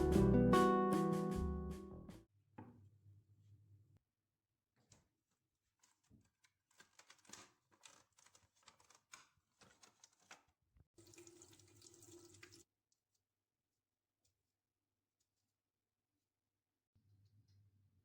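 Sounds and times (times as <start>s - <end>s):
objects clicking and tapping: 5.8s - 10.5s.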